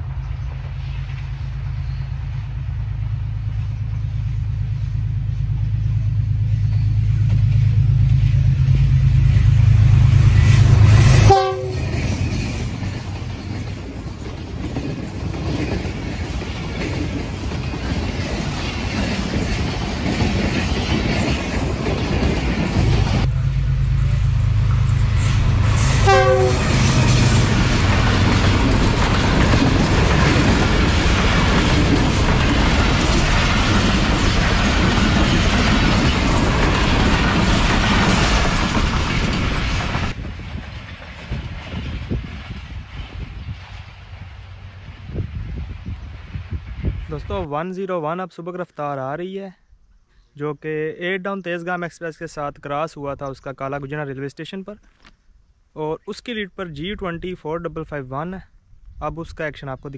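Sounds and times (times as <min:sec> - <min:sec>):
locomotive engine drone: 0:00.0 - 0:47.4
train coaches rumbling past: 0:00.0 - 0:47.5.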